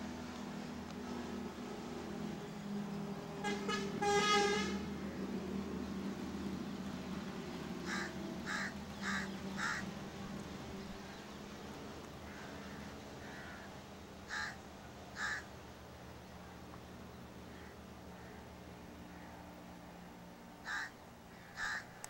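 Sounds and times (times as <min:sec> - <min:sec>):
steady low hum: 0:00.0 - 0:22.0
bird harsh calls: 0:07.6 - 0:10.1, 0:14.3 - 0:14.6, 0:15.2 - 0:15.5, 0:20.6 - 0:22.0.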